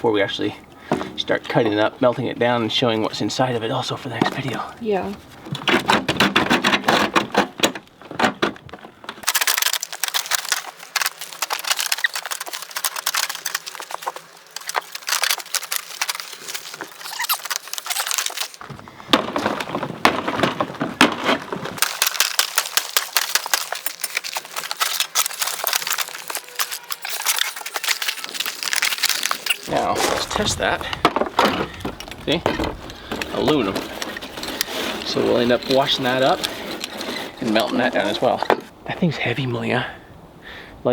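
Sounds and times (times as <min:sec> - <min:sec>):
rusty metal parts rattling: 0:04.4 - 0:38.7.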